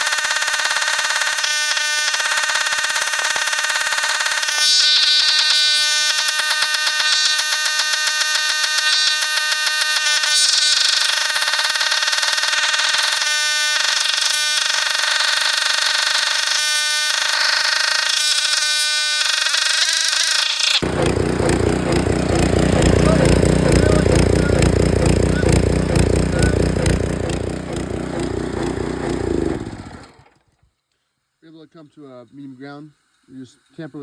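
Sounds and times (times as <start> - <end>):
pressure washer engine buzzing: 20.8 - 30.4.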